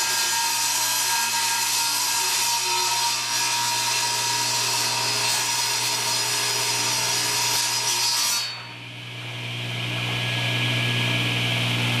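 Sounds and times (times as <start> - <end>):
table saw blade cutting plywood: 0.0 - 8.8.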